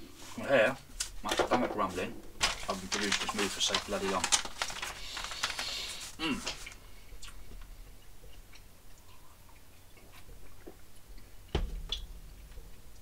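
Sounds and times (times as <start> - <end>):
quiet chewing: 6.4 - 11.5.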